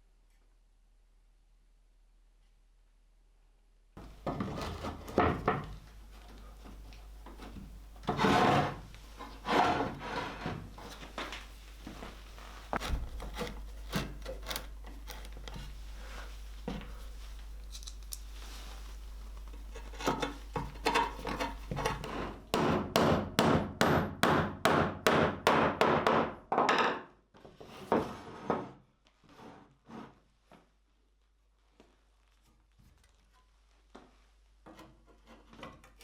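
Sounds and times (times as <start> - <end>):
clicks and knocks of handling tools: 17.6 - 18.4, 19.3 - 22.1.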